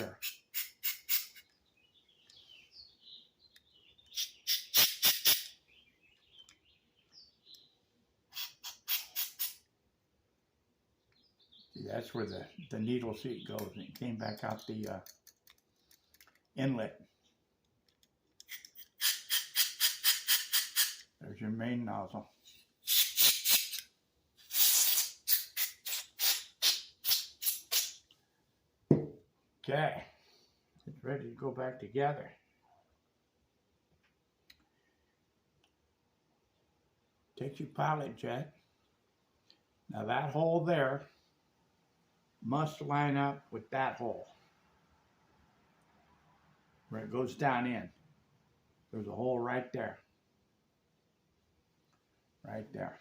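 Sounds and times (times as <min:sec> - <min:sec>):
birds chirping faintly: 0:00.0 - 0:19.4
short hissing air blasts: 0:00.1 - 0:01.4, 0:04.1 - 0:05.6, 0:08.3 - 0:09.6, 0:19.0 - 0:21.0, 0:22.8 - 0:23.8, 0:24.4 - 0:28.0.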